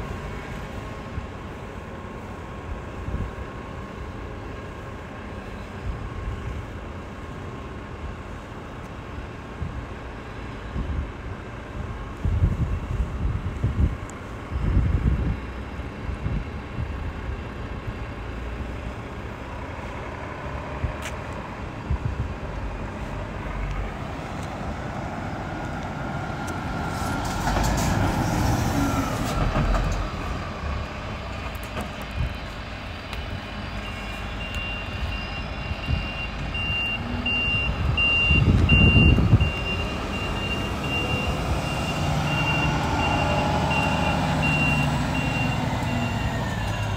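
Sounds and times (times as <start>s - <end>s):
diesel truck engine running: 0.0s - 46.9s
reversing alarm beeping: 33.6s - 46.9s.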